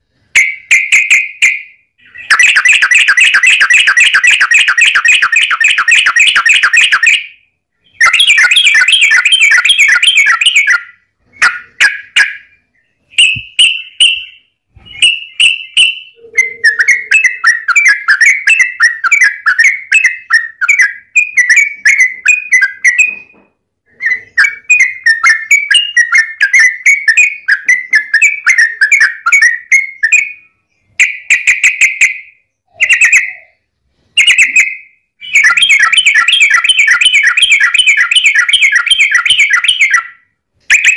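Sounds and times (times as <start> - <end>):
bulbul chattering song: 0.1 - 40.9.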